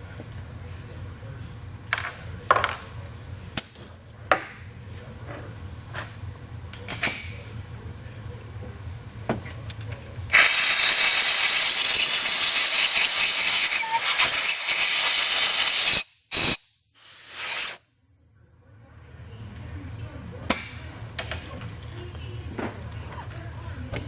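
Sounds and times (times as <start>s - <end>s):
air blowgun hissing: 10.3s - 17.8s.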